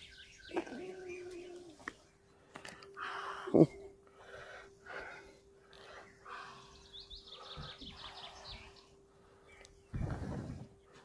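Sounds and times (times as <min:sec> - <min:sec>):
faint steady hum: 0:00.0 - 0:11.0
songbird trill: 0:00.0 - 0:11.0
soft breathing close to microphone: 0:02.3 - 0:11.0.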